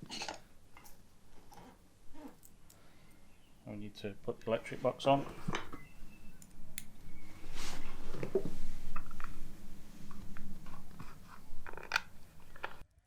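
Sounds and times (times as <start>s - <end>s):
parts clicking and knocking: 10.1s - 12.8s.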